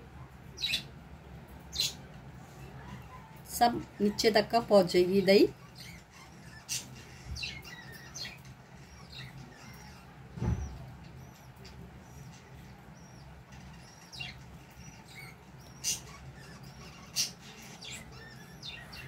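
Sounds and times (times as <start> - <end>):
small birds chirping: 0.0 - 19.0
low thud: 10.4 - 10.8.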